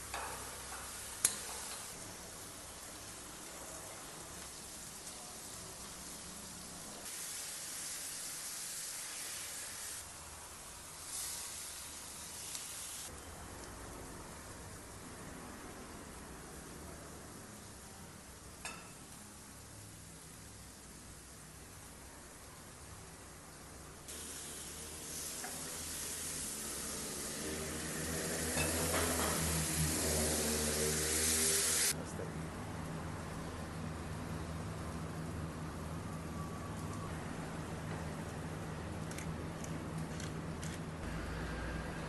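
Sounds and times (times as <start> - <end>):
food sizzling in hot fat: 0.0 - 13.3, 15.8 - 32.0.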